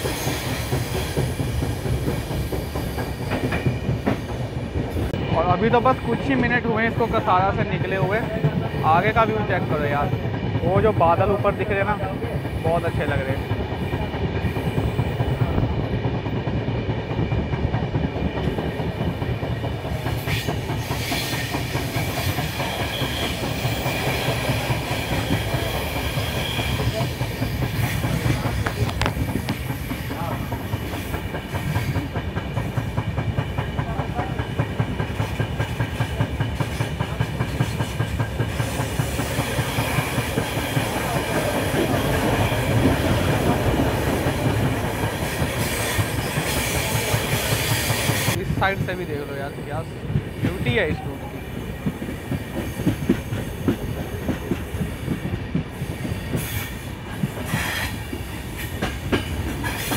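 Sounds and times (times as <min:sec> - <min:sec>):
train coach rumbling: 0:00.0 - 0:59.9
wheels clacking over rail joints: 0:13.4 - 0:49.2, 0:50.1 - 0:59.9.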